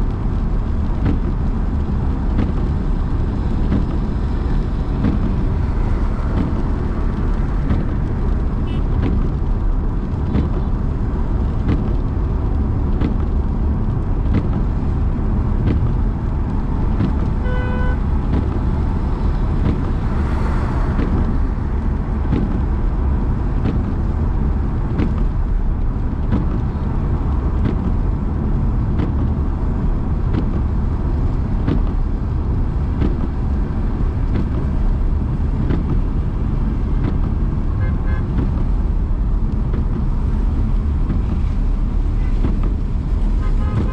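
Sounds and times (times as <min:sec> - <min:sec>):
car engine and road noise: 0:00.0 - 0:43.9
vehicle passing: 0:18.0 - 0:23.4.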